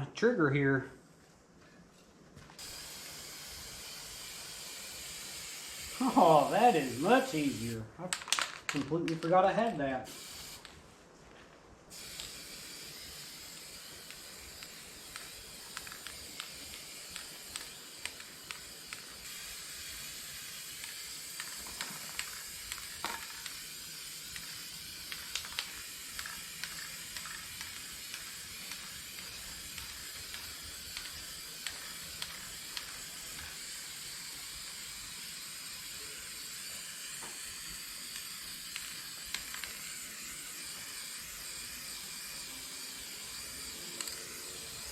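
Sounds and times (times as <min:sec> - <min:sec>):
spray paint hissing: 0:02.6 - 0:07.8, 0:10.0 - 0:10.8, 0:11.9 - 0:44.9
small ticks and clicks: 0:14.0 - 0:19.2.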